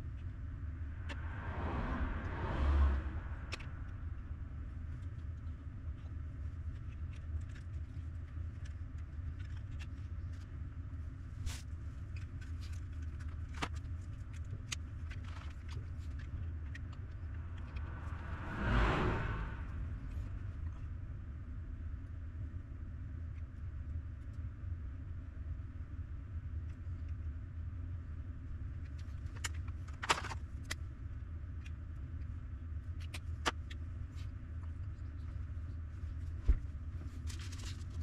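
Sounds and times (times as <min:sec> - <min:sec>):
traffic rumble: 0:00.0 - 0:26.7
vehicles passing: 0:00.1 - 0:06.9, 0:15.4 - 0:22.0.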